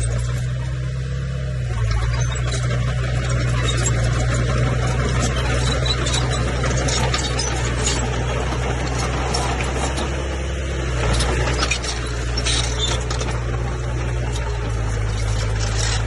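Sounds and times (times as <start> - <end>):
bulldozer diesel engine droning: 0.0 - 16.0
high clinks and squeaks: 1.8 - 9.9, 11.2 - 13.6, 14.3 - 16.0.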